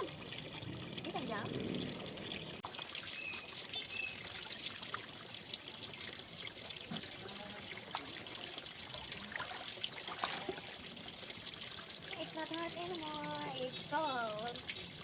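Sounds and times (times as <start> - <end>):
water splashing in plastic bin: 6.7 - 10.9.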